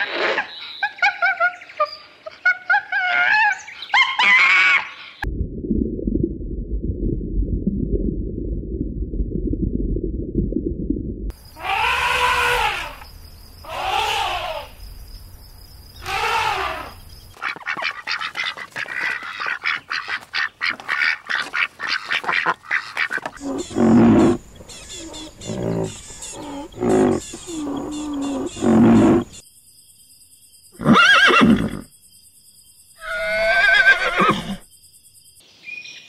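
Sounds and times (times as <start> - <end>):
elephant trumpeting: 11.5 - 13.0, 13.6 - 14.8, 16.0 - 17.0, 23.4 - 29.3
ducks quacking rapidly: 16.0 - 28.7.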